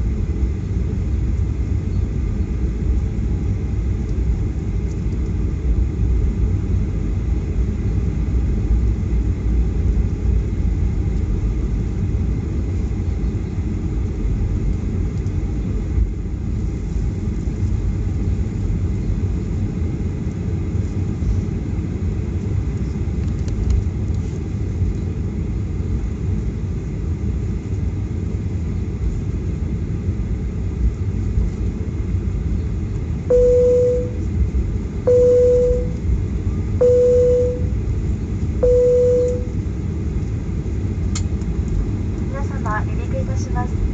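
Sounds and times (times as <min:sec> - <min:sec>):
airplane cabin rumble: 0:00.0 - 0:43.9
short beeps: 0:33.3 - 0:34.2, 0:35.1 - 0:36.0, 0:36.8 - 0:37.8, 0:38.6 - 0:39.6.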